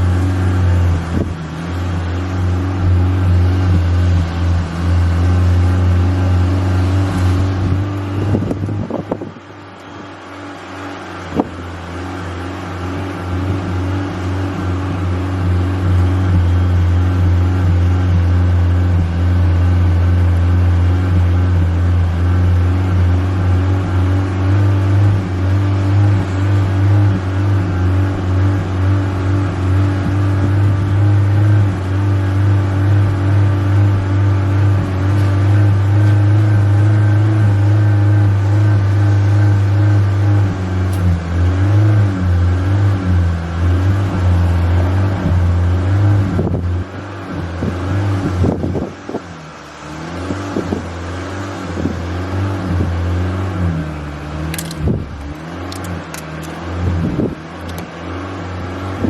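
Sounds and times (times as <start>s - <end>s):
car engine revving: 0.0s - 59.0s
sharp click: 54.5s - 54.9s.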